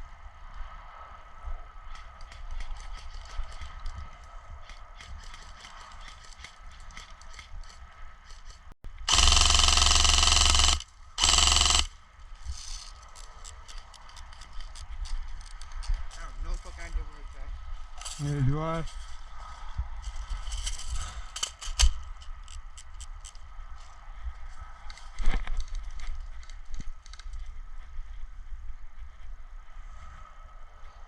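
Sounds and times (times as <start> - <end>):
airsoft gun full-auto bursts: 9.1 - 11.9.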